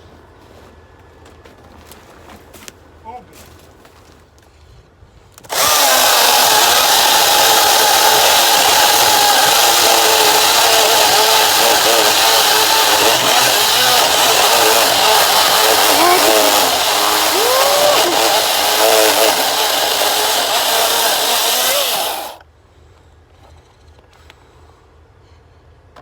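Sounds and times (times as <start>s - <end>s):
chainsaw cutting wood: 5.4s - 22.4s.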